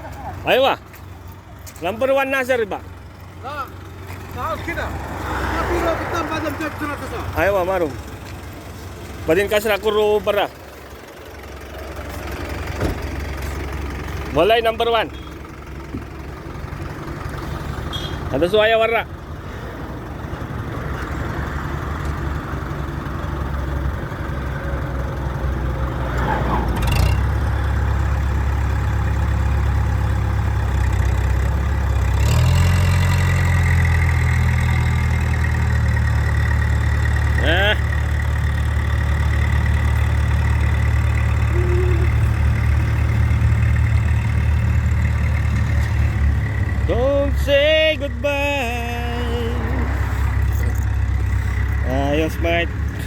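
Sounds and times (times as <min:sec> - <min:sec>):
large vehicle engine idling: 0:00.0 - 0:53.0.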